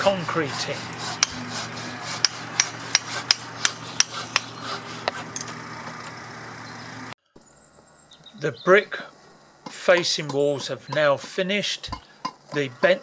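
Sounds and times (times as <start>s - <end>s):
hammer blows with ringing: 0.0s - 5.2s.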